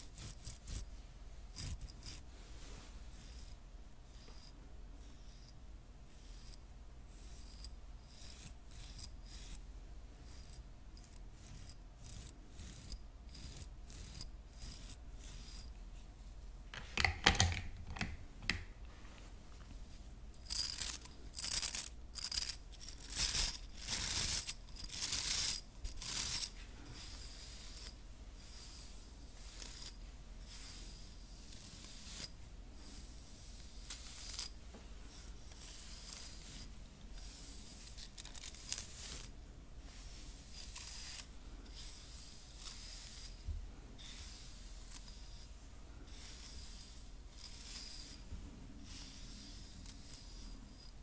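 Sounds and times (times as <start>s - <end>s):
hairbrush bristles scratching: 0.0s - 3.6s, 10.2s - 16.0s, 16.8s - 43.4s, 44.0s - 51.0s
hairbrush bristles tapping: 16.8s - 18.7s.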